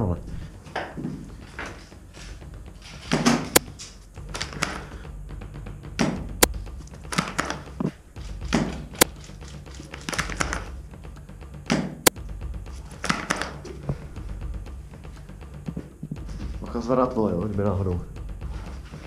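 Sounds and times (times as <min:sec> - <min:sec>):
sharp click: 0:06.0 - 0:10.6.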